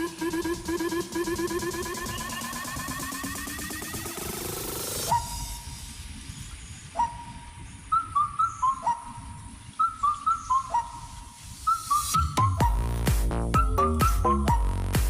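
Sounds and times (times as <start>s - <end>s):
person whistling a tune: 11.6s - 15.0s.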